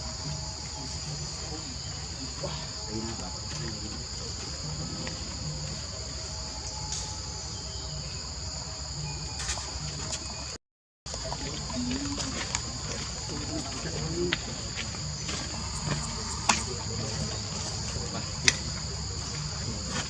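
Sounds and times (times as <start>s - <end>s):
insects buzzing: 0.0s - 20.0s.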